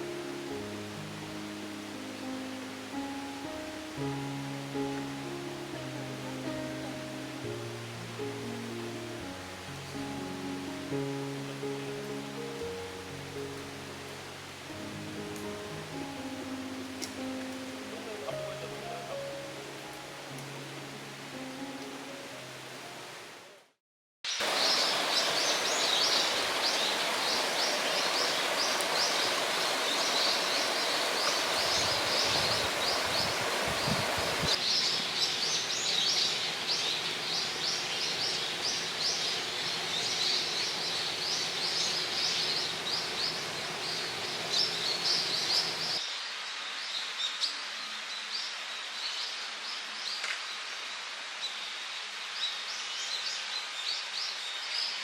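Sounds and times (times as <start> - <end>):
small birds chirping: 24.4 - 47.6.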